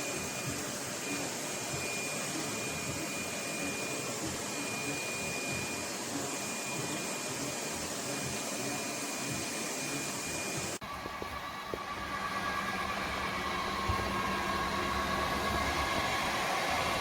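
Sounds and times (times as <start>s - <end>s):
thin high whine: 0.0s - 17.0s.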